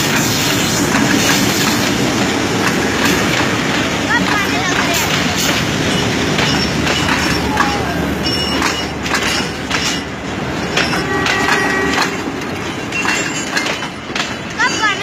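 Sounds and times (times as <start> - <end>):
train rumbling on rails: 0.0 - 15.0
clattering clicks: 0.9 - 14.6.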